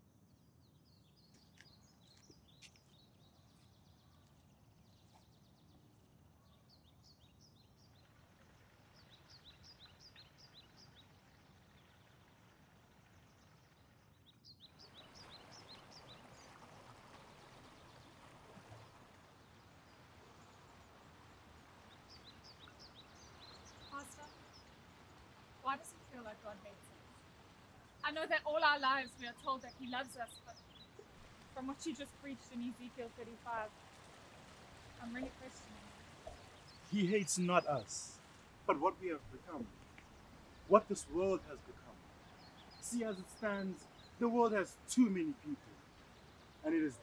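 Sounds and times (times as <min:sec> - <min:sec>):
small birds chirping: 0:00.0 - 0:12.3, 0:13.1 - 0:16.6, 0:17.2 - 0:47.0
background hiss: 0:14.9 - 0:47.0.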